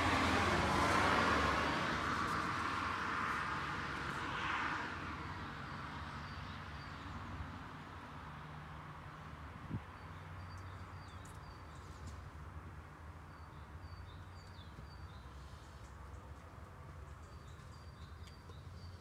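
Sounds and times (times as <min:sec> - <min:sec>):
small birds chirping: 0:09.9 - 0:12.4, 0:13.2 - 0:19.0.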